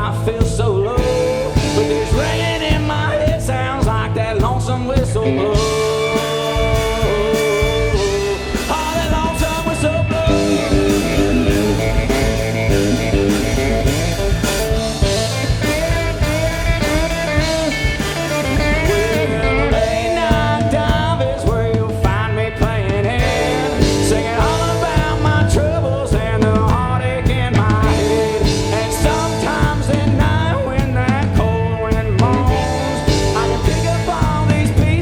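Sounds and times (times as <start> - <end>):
live country-rock band playing: 0.0 - 35.0
lead instrument bending notes: 5.3 - 21.8.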